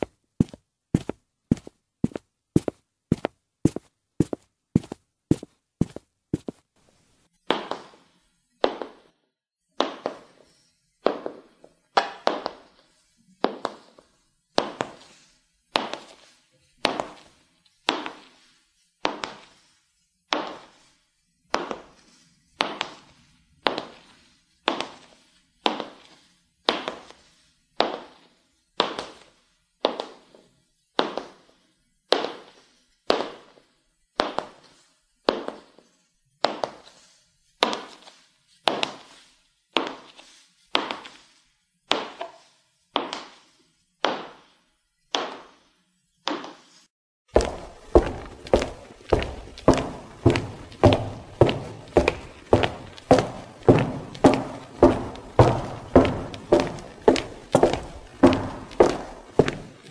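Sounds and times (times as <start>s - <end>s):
high heels clicking on hard floor: 0.0s - 6.6s, 7.5s - 8.0s, 8.6s - 9.1s, 9.8s - 10.3s, 16.8s - 17.3s, 17.9s - 18.2s, 43.0s - 43.4s, 44.0s - 44.4s, 45.1s - 45.6s, 47.3s - 59.9s.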